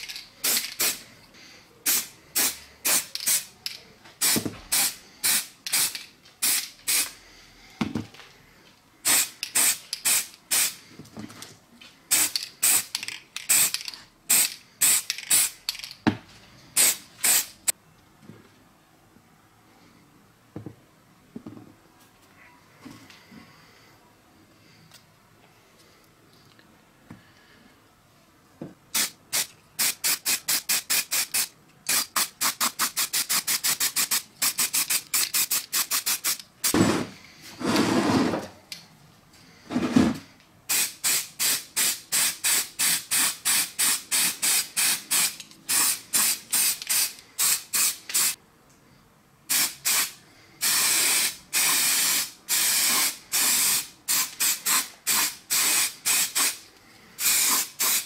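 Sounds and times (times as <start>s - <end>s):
spray paint can bursts: 0.0s - 1.0s, 1.8s - 3.5s, 4.2s - 7.2s, 9.0s - 10.8s, 12.1s - 15.7s, 16.8s - 17.7s, 28.9s - 36.8s, 40.7s - 48.4s, 49.5s - 56.6s, 57.2s - 58.0s.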